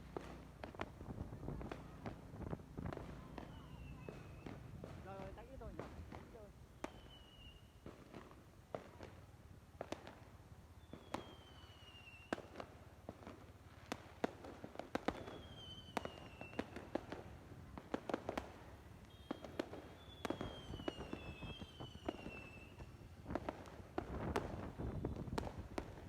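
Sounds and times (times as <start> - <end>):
fireworks bangs and crackles: 0.0 - 26.0
falling firework whistles: 3.4 - 4.6, 6.7 - 8.3, 10.8 - 12.7, 15.0 - 17.1, 19.0 - 26.0.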